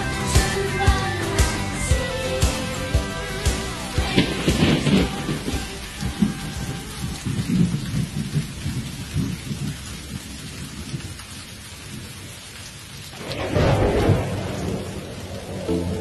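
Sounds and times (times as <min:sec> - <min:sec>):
steady rain: 0:00.0 - 0:16.0
thunder rumbling: 0:03.8 - 0:12.4, 0:13.0 - 0:16.0.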